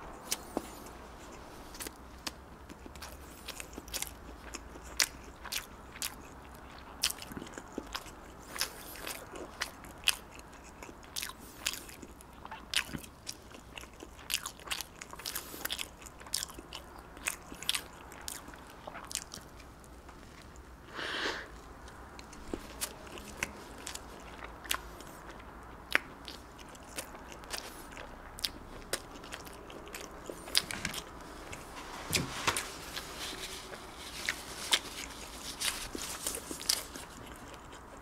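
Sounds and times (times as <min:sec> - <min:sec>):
wet chewing clicks and smacks: 0:00.1 - 0:20.7, 0:21.8 - 0:31.2.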